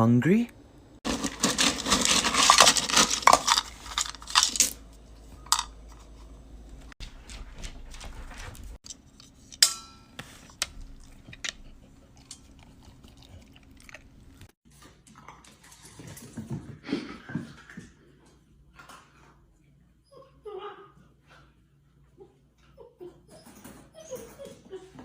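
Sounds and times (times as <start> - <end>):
cat crunching dry food: 1.0 - 6.3
sharp ringing clink: 9.6 - 10.2.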